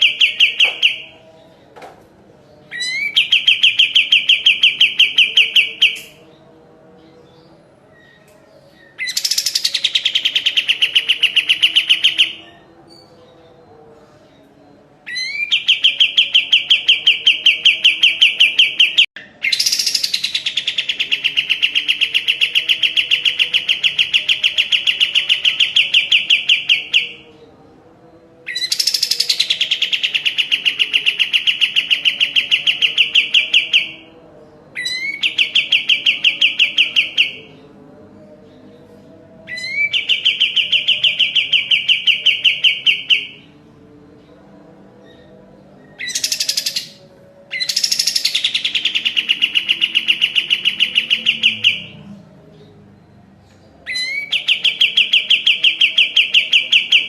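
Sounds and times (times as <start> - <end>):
songbird singing fast trills: 8.8 - 12.6, 28.5 - 34.1, 45.9 - 52.0.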